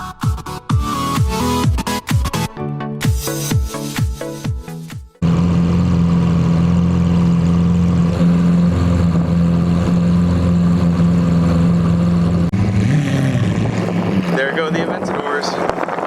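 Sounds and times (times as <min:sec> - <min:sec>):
car engine idling: 0:05.2 - 0:15.9.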